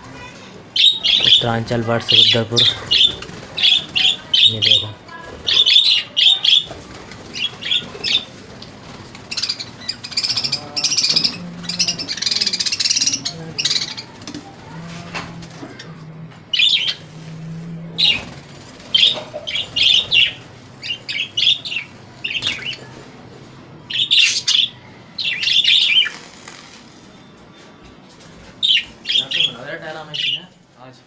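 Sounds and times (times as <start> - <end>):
budgerigars chirping and chattering: 0.8 - 14.6, 15.6 - 17.1, 18.0 - 23.0, 23.9 - 26.3, 28.6 - 30.6.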